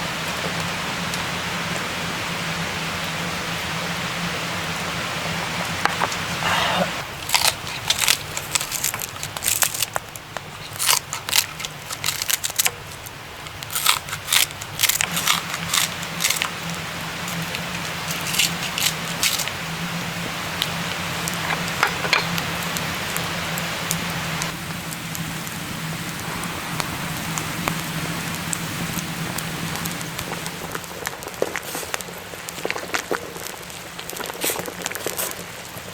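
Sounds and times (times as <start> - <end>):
steady rain: 0.0 - 35.9
sharp clicks and crackles: 7.2 - 19.6.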